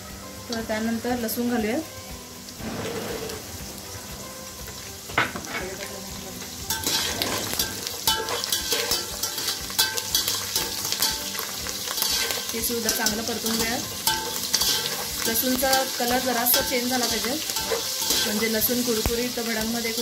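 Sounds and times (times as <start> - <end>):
hot oil sizzling in a pot: 0.0 - 20.0
sharp knock: 2.6 - 4.5
metal spoon scraping a pot: 6.7 - 18.6.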